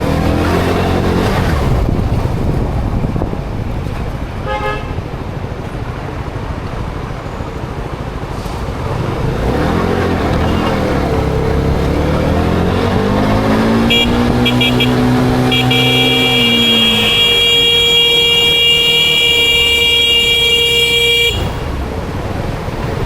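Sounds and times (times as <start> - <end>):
motorcycle engine revving: 0.0 - 3.8, 8.2 - 23.0
vehicle horn: 4.4 - 5.0, 13.8 - 21.8.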